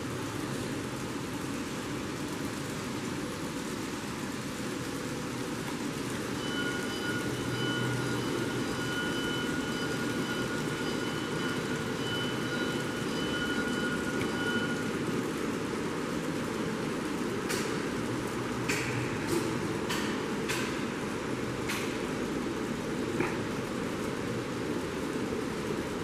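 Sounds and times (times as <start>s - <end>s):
model train whirring hum: 0.0s - 26.0s
thin high whine: 6.1s - 16.4s.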